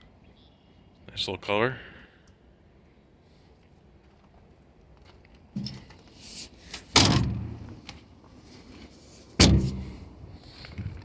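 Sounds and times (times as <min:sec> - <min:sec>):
van door slamming: 0:06.9 - 0:07.7, 0:09.4 - 0:10.0.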